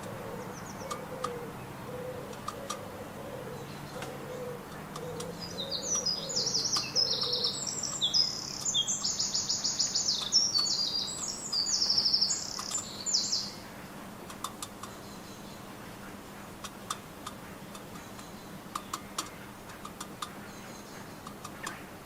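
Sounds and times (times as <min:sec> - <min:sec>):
low soft cooing: 0:00.0 - 0:07.6
songbird trilling: 0:00.0 - 0:13.8.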